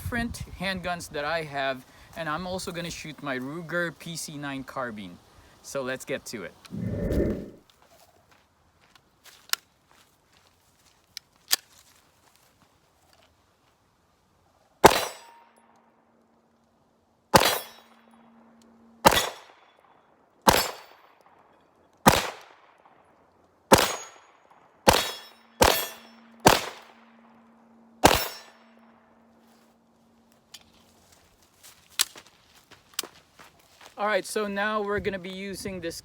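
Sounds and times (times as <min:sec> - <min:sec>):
pistol shots: 0:14.8 - 0:15.4, 0:17.3 - 0:17.8, 0:19.0 - 0:19.5, 0:20.5 - 0:21.0, 0:22.0 - 0:22.6, 0:23.7 - 0:24.2, 0:24.8 - 0:27.1, 0:28.0 - 0:28.5
steel plates ringing: 0:25.1 - 0:26.4, 0:27.6 - 0:28.8.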